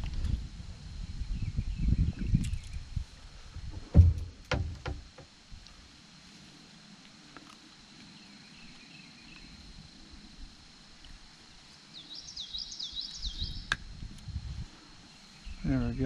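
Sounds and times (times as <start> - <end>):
high insect drone: 0.0 - 16.0
songbird singing: 1.2 - 3.0, 7.8 - 10.1, 11.0 - 16.0.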